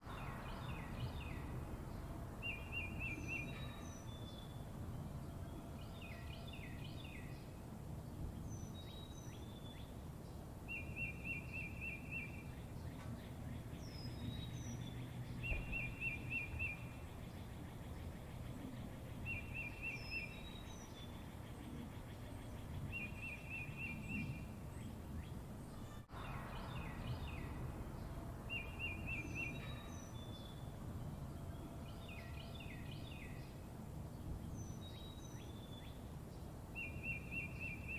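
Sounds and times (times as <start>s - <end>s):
high down-slurred bird chirps: 10.7s - 21.2s, 25.2s - 30.7s.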